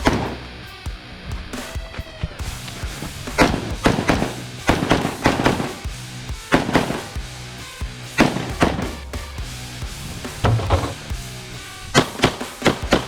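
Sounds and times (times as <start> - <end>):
background music: 0.0 - 13.0
gunshots in quick pairs: 3.3 - 5.9, 6.5 - 7.2, 8.2 - 9.1, 11.8 - 13.0.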